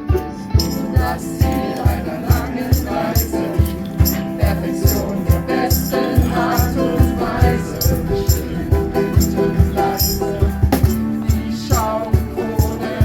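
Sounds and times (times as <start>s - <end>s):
person singing: 0.0s - 13.0s
ukulele music: 0.0s - 13.0s
shaker rattle: 0.6s - 13.0s
low beat: 3.7s - 13.0s.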